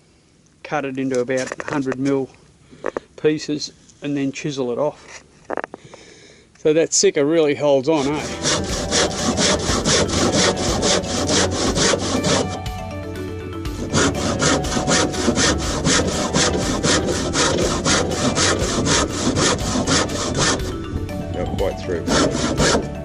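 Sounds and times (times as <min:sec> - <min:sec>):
saw cutting wood: 0:07.9 - 0:12.6, 0:13.7 - 0:20.8, 0:21.9 - 0:23.0.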